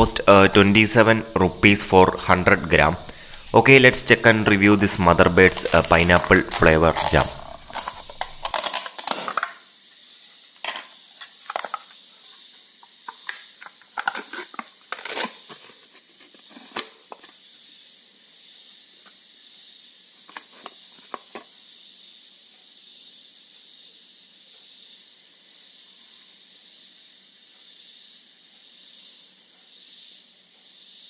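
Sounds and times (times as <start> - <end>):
jam jar being opened: 1.6 - 9.6.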